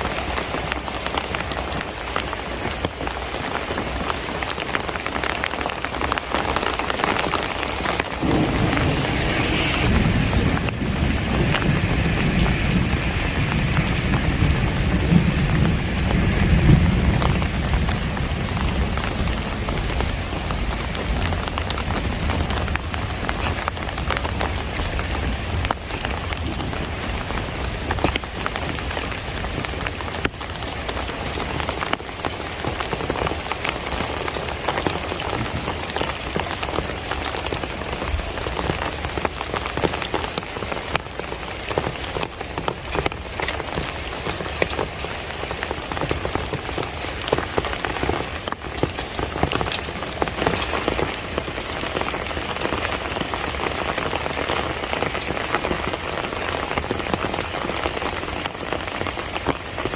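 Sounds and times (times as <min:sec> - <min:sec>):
rain falling: 0:00.0 - 0:59.9
raindrops clicking: 0:00.0 - 0:59.9
low rumble: 0:07.9 - 0:15.3.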